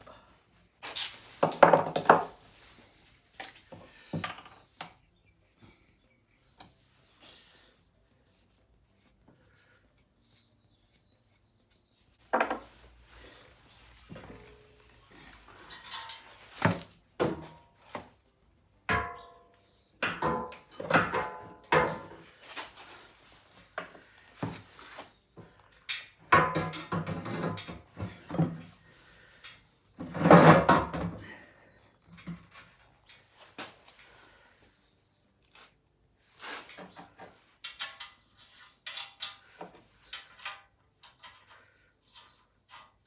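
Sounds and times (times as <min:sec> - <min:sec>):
heavy metal parts clanking: 0:00.8 - 0:02.4.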